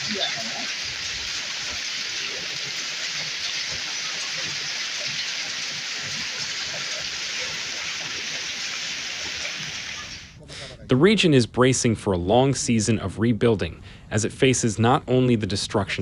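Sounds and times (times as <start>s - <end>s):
heavy rain downpour: 0.0s - 10.4s.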